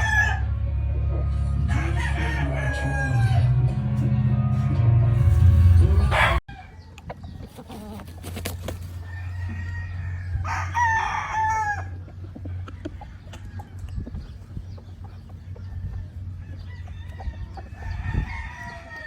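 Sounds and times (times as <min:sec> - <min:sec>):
rooster crowing: 0:00.0 - 0:00.6, 0:01.6 - 0:03.6, 0:06.0 - 0:06.8, 0:09.0 - 0:12.0, 0:16.3 - 0:19.0
music with heavy bass: 0:00.0 - 0:06.4.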